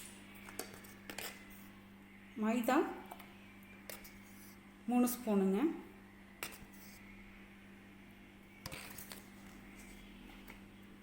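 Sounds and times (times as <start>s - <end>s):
spoon scraping: 0.4s - 1.7s, 3.8s - 4.6s, 8.6s - 10.6s.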